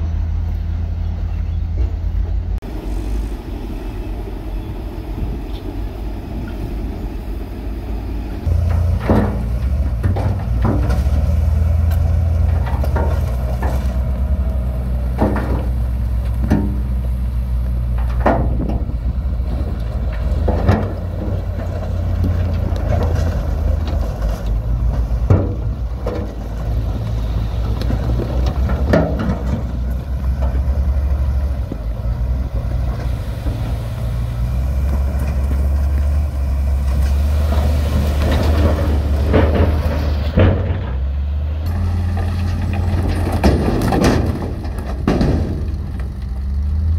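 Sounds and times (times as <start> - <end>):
diesel machinery running: 0.0 - 46.9
knocks of stone and steel: 8.4 - 14.1, 15.1 - 15.8, 24.8 - 26.5, 38.2 - 46.1.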